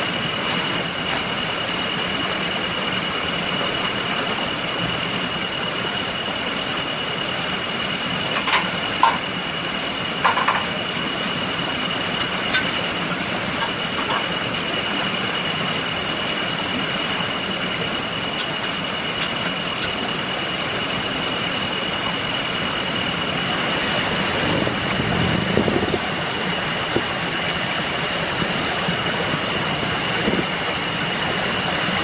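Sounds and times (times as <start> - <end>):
rain hiss: 0.0 - 32.0.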